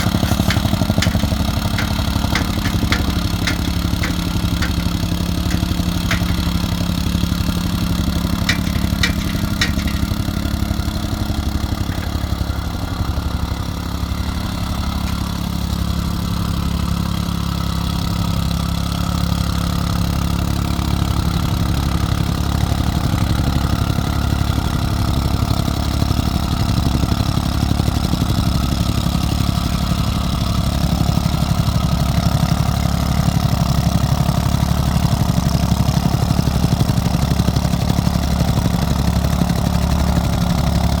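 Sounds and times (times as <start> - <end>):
sharp clicks: 0.0 - 6.8
machine engine idling: 0.0 - 16.4.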